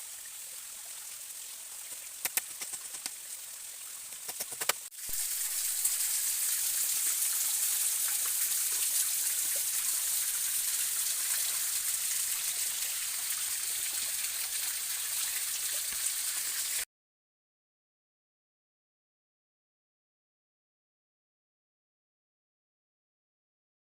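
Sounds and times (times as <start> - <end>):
stream water flowing: 0.0 - 16.8.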